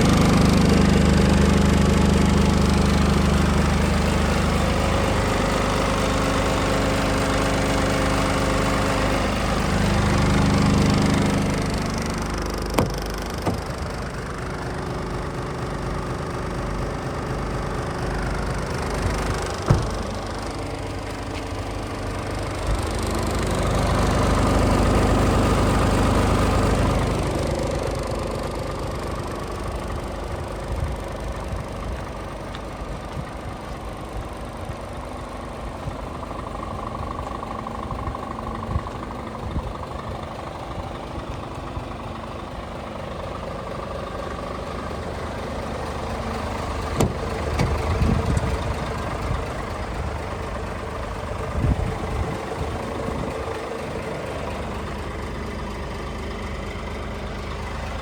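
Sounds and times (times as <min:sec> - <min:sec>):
diesel truck engine idling: 0:00.0 - 0:58.0
short knocks: 0:12.6 - 0:13.9, 0:19.0 - 0:20.2, 0:47.0 - 0:48.6.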